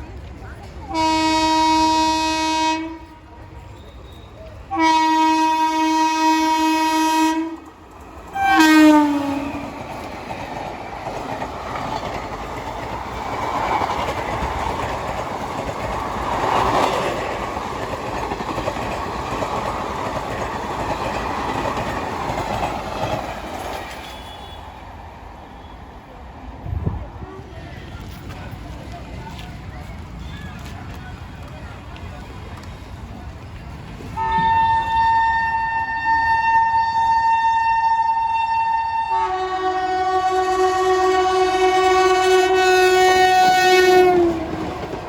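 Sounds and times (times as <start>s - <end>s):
train rattling over track: 0.0s - 45.0s
train horn blasts: 0.9s - 3.5s, 4.1s - 7.6s, 8.3s - 9.8s, 24.0s - 24.8s, 34.2s - 44.7s.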